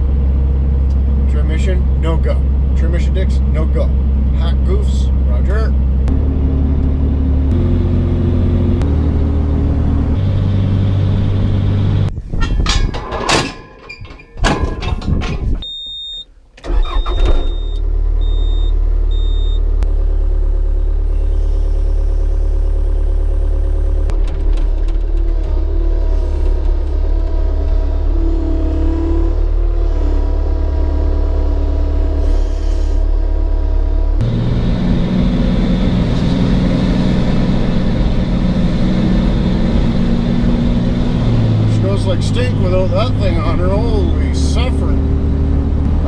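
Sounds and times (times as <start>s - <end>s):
vehicle engine drone: 0.0s - 12.8s, 16.6s - 46.0s
clattering: 12.4s - 15.7s.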